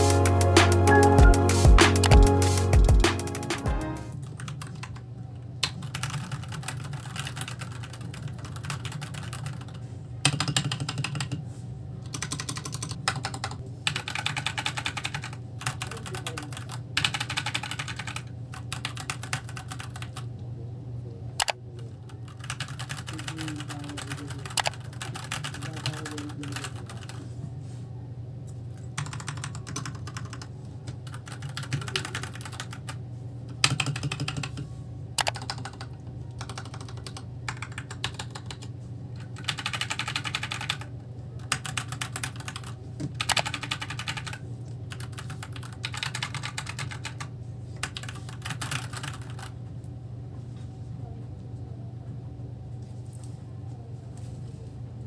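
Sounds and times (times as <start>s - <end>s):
mechanical keyboard typing: 5.6s - 11.4s, 12.1s - 20.3s, 22.3s - 27.2s, 29.0s - 33.0s, 33.6s - 34.6s, 35.2s - 49.6s.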